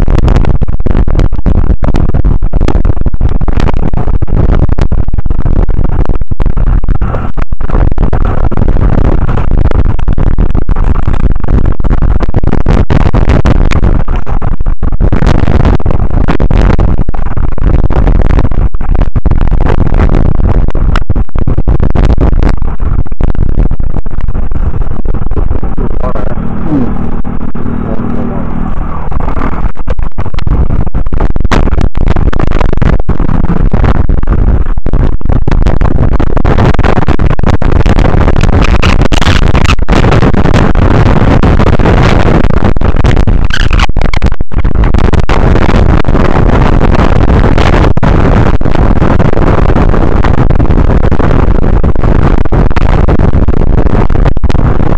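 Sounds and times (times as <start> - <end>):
wind buffeting the microphone: 0.0 - 54.9
faint low hum: 24.4 - 29.9.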